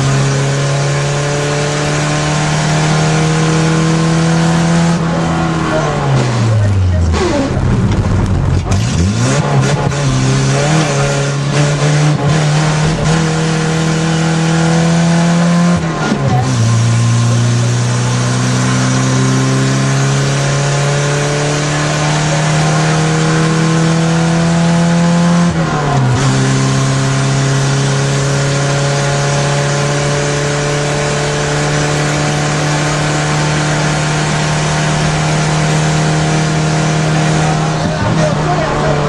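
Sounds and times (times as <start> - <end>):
car engine accelerating hard: 0.0 - 39.0.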